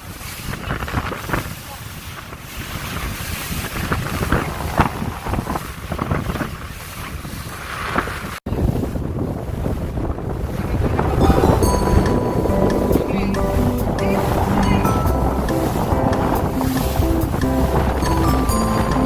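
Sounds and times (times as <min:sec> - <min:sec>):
wind buffeting microphone: 0:00.0 - 0:19.0
water rushing and splashing: 0:09.4 - 0:19.0.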